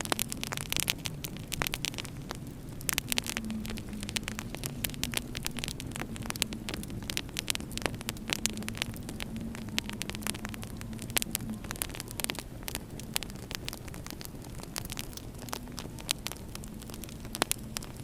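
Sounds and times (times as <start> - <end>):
faint wavering low drone: 0.0 - 18.0
wood fire crackling: 0.0 - 18.0.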